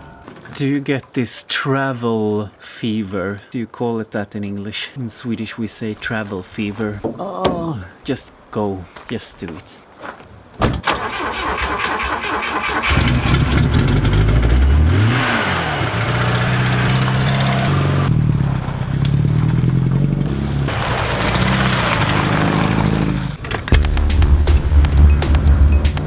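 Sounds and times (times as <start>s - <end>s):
car engine starting and revving: 10.9s - 26.0s.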